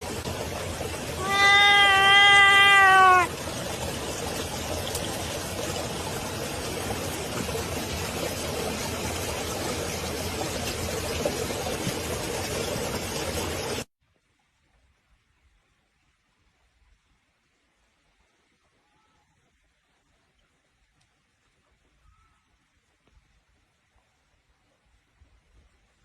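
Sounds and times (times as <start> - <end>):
cat meowing: 1.2 - 3.3.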